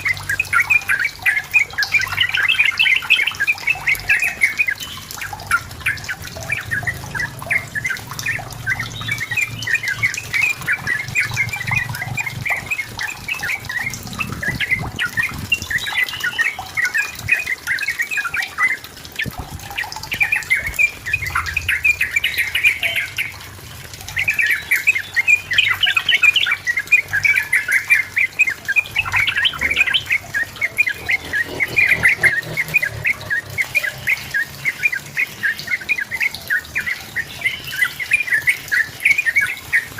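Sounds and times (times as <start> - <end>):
bird chattering song: 0.0 - 23.4, 24.0 - 39.9.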